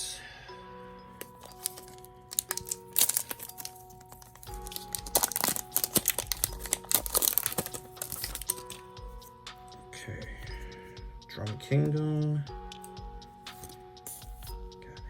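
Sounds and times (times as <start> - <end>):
soft background music: 0.0 - 15.0
foil wrapper crinkling and tearing: 1.3 - 8.8.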